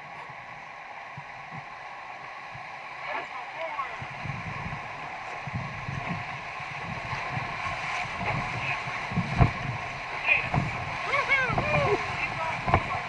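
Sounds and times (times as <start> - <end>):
river rushing through rapids: 0.0 - 13.0
low thumps: 4.0 - 13.0.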